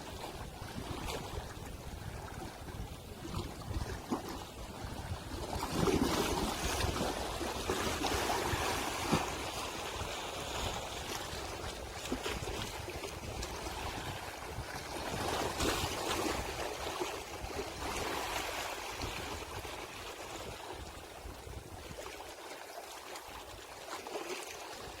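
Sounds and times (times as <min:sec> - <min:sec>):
sea waves washing onto shore: 0:04.6 - 0:20.9.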